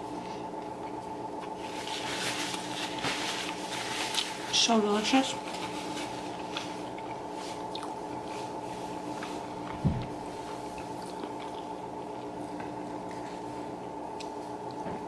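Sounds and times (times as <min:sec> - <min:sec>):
steady hum: 0:00.0 - 0:15.0
chewing mouth sounds: 0:06.3 - 0:14.8.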